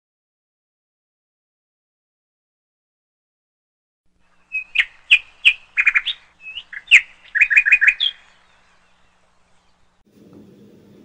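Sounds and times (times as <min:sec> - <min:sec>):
bird chirping and whistling: 0:04.4 - 0:09.9.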